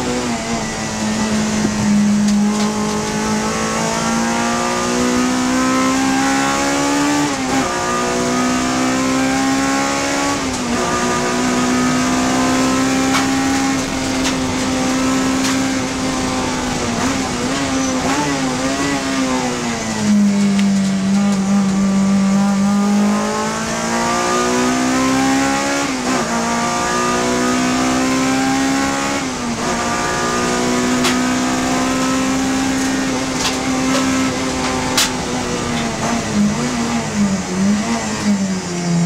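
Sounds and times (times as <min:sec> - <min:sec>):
race car engine revving high: 0:00.0 - 0:39.0.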